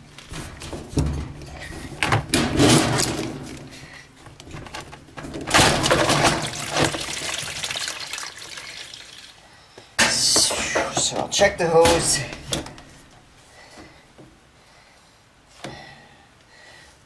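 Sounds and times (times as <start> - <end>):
water rushing from drain line: 5.5 - 10.4.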